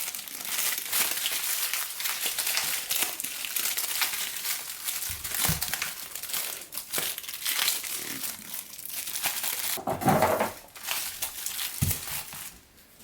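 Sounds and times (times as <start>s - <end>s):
crinkling and rustling handling: 0.0s - 13.0s.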